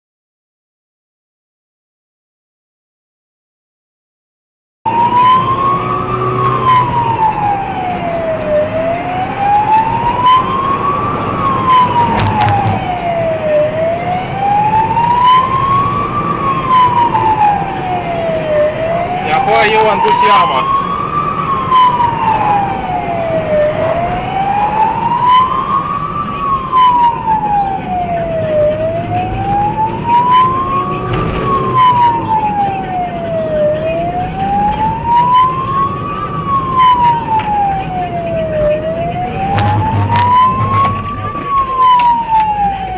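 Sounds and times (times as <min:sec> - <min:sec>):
emergency siren wailing: 0:04.9 - 0:42.9
knocks and clicks: 0:12.0 - 0:12.9, 0:39.5 - 0:41.4.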